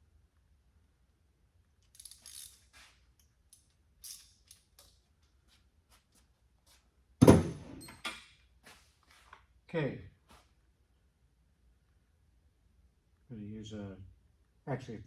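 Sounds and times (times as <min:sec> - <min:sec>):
metal tools clinking: 0:02.0 - 0:03.0, 0:03.6 - 0:04.9
loud clunk: 0:07.2 - 0:07.8.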